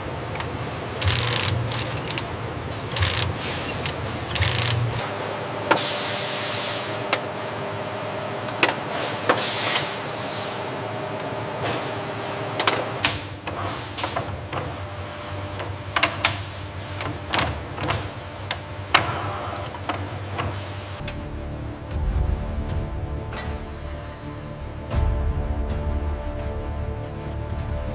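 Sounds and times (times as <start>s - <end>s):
metallic clicks and clanks: 0.3s - 5.0s.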